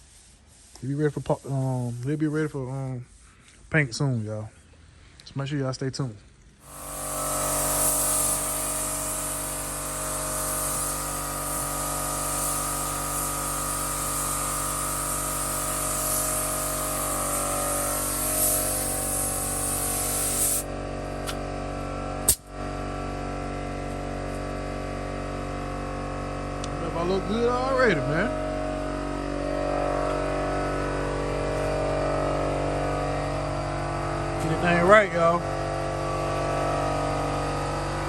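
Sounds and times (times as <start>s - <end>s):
spray gun hissing air: 0.0s - 0.8s, 6.6s - 21.4s, 22.2s - 22.5s
machine hum: 6.6s - 38.0s
sharp click: 22.3s - 22.5s.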